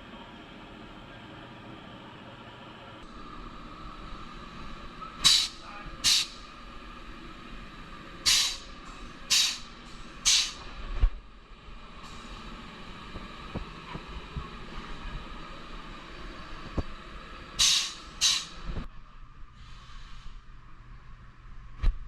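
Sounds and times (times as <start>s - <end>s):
steady shop hum: 0.0s - 22.0s
pneumatic tool air hisses: 5.2s - 6.4s, 8.2s - 10.7s, 17.6s - 18.6s, 19.6s - 20.4s.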